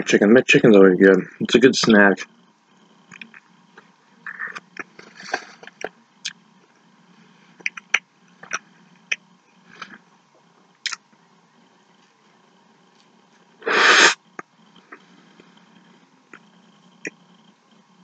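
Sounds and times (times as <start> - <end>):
mouth clicks and smacks chewing: 3.1 - 3.5, 7.6 - 9.2, 10.8 - 11.0.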